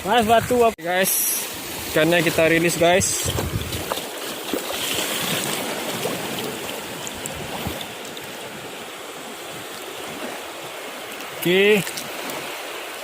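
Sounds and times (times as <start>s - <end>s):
water rushing beside a boat: 0.0s - 13.0s.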